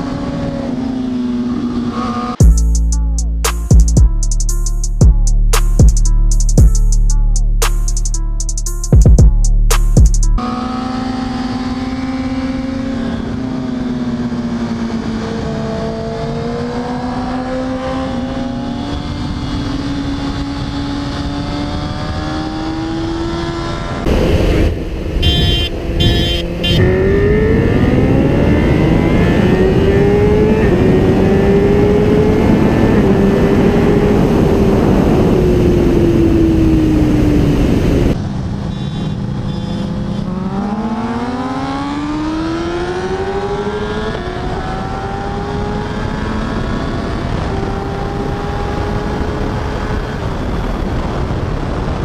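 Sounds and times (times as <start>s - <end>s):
motorcycle engine at speed: 0.0s - 2.6s, 10.4s - 52.0s
wind rush: 18.0s - 38.6s, 42.4s - 52.0s.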